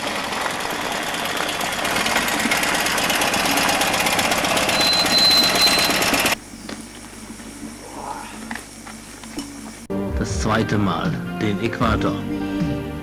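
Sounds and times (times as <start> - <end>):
motorcycle engine running: 0.0 - 6.5
thin high whistle: 4.7 - 6.2.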